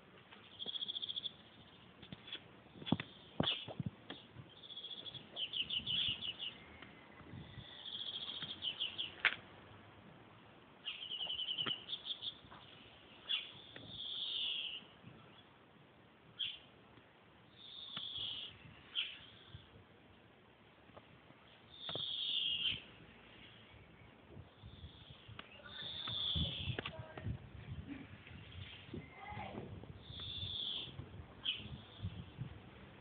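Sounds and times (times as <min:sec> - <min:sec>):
birds chirping and trilling: 0:00.4 - 0:02.0, 0:02.7 - 0:09.3, 0:10.8 - 0:15.6, 0:16.4 - 0:16.7, 0:17.5 - 0:19.7, 0:21.4 - 0:27.0, 0:30.0 - 0:32.4.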